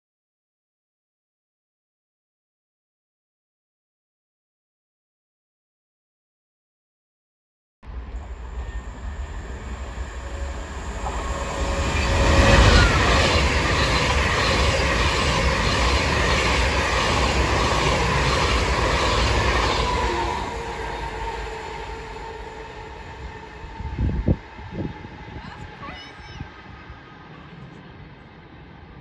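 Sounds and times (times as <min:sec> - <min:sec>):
train running on rails: 0:07.9 - 0:29.0.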